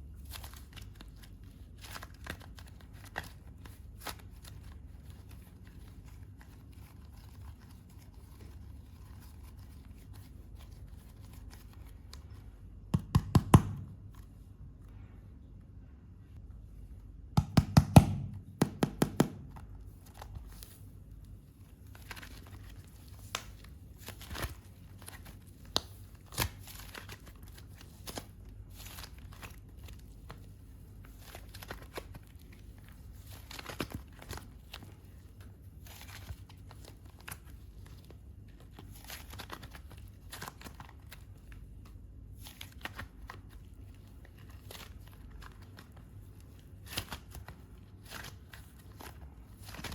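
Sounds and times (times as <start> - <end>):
sharp knocks: 17.4 - 19.5.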